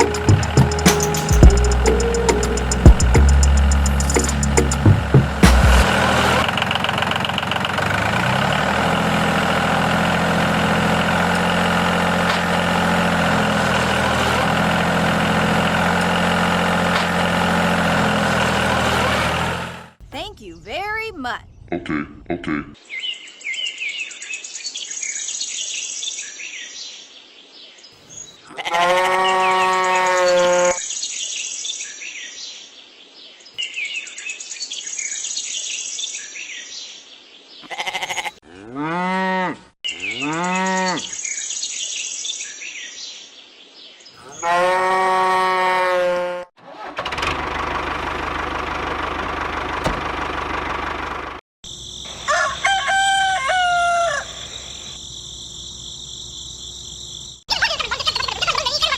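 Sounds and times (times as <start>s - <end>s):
birds chirping: 0.0s - 5.8s, 51.7s - 58.9s
farm animal calls: 28.5s - 30.8s, 37.6s - 41.1s, 52.0s - 55.0s.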